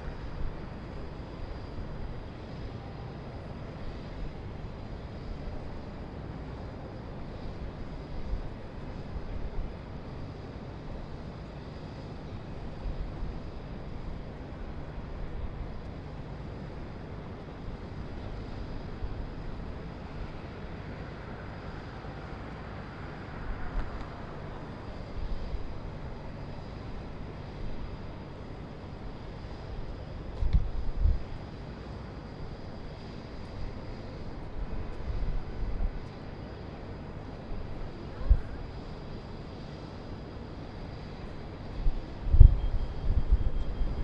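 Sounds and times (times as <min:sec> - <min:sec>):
distant traffic rumble: 0:11.5 - 0:44.0.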